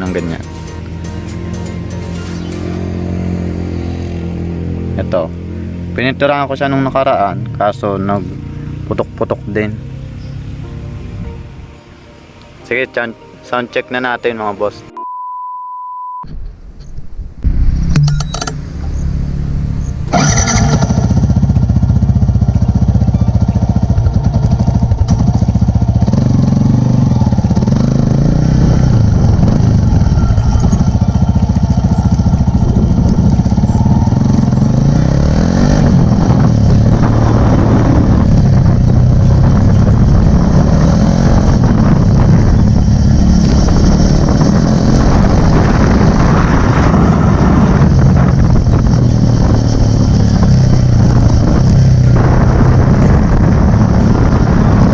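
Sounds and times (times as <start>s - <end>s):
motorcycle engine revving: 0.0s - 11.5s, 17.6s - 54.9s.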